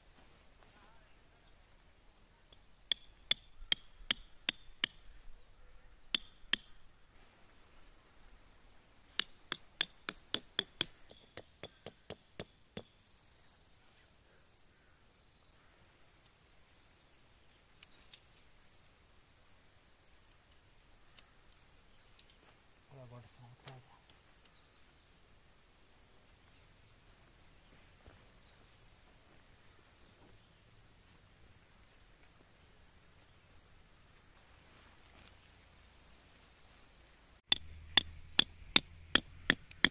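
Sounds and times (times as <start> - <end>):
insects chirring: 0.0 - 39.9
hammer striking tent stakes: 2.5 - 5.1, 6.1 - 6.8, 9.1 - 12.9, 37.5 - 39.9.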